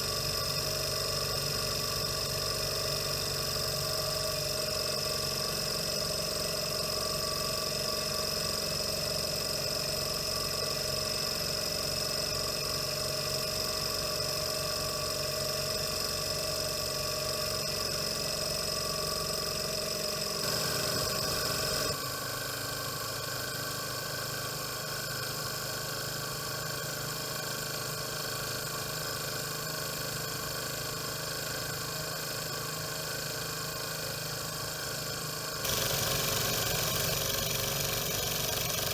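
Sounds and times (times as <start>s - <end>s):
model stirling engine whirring: 20.4s - 22.0s, 34.0s - 38.9s.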